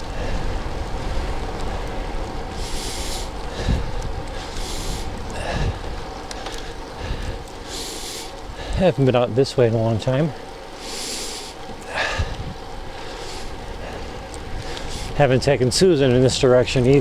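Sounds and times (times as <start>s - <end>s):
rider breathing out: 0.0s - 9.0s, 10.3s - 15.2s
wind and tyre rumble: 0.0s - 17.0s.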